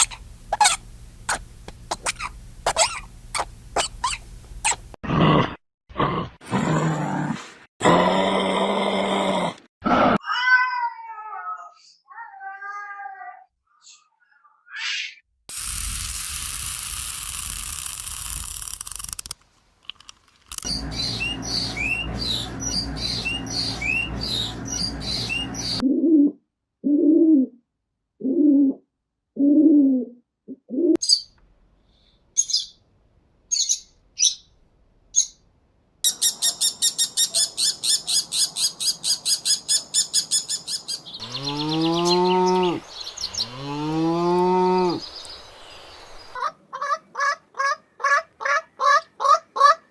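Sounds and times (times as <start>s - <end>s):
hiss: 15.5s - 18.9s
bird chirping: 20.6s - 25.8s, 32.4s - 32.8s, 33.5s - 34.6s, 36.0s - 46.5s
rapid chirping: 20.6s - 25.8s
long mooing animal calls: 41.2s - 45.0s.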